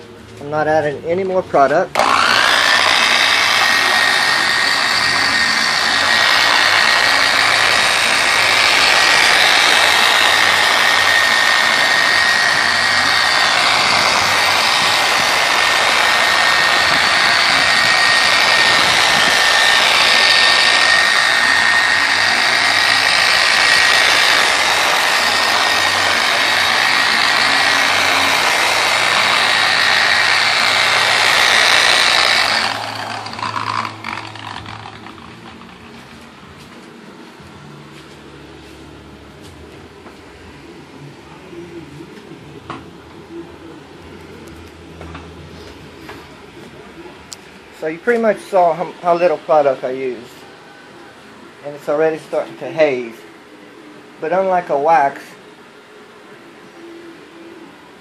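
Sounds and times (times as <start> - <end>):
polisher whining: 1.9 - 36.4.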